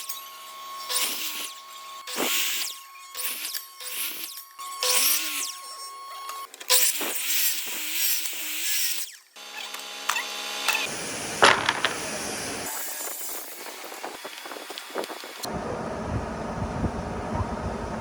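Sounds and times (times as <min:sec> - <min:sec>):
power tool motor bursts: 0:00.0 - 0:15.5
steady mechanical noise: 0:09.4 - 0:18.0.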